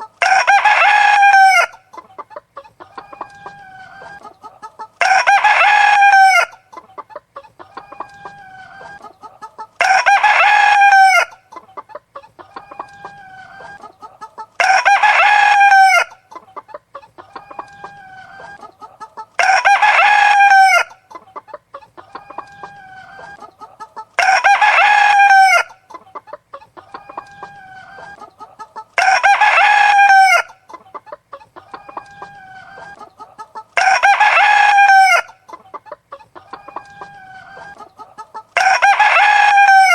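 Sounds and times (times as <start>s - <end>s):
hen clucking: 0.0s - 39.9s
rooster crowing: 0.2s - 1.8s, 5.0s - 6.6s, 9.8s - 11.4s, 14.6s - 16.2s, 19.4s - 21.0s, 24.2s - 25.8s, 29.0s - 30.6s, 33.8s - 35.4s, 36.5s - 39.9s.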